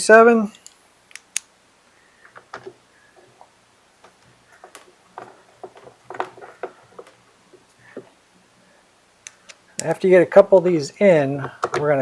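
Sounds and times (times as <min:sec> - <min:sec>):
plastic parts being handled: 0:02.2 - 0:08.2, 0:11.4 - 0:12.0.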